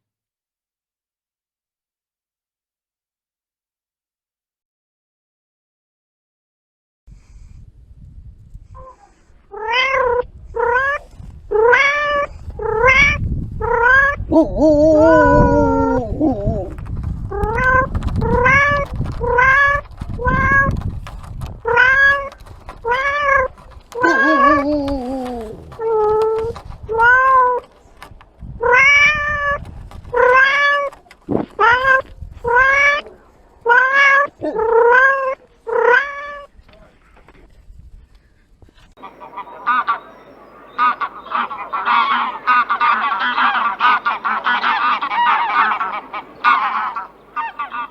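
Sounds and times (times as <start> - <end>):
cat meowing: 9.5 - 14.2, 21.7 - 27.6, 28.6 - 30.9, 31.6 - 36.5.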